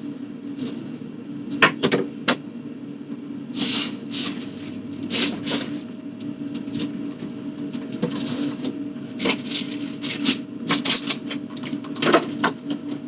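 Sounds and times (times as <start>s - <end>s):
refrigerator low hum: 0.0s - 13.0s
items sliding and rubbing: 3.6s - 5.9s.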